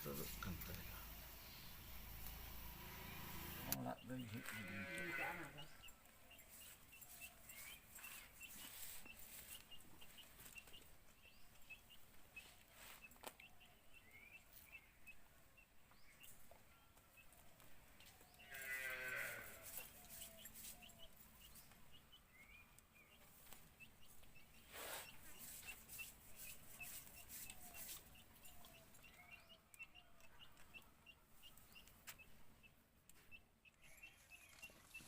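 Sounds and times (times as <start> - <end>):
farm animal calling: 3.0 - 6.0, 18.3 - 21.2.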